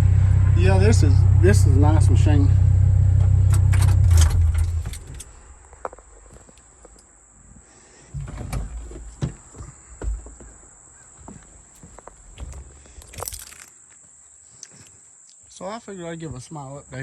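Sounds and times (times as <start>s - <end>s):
excavator diesel engine idling: 0.0s - 4.5s.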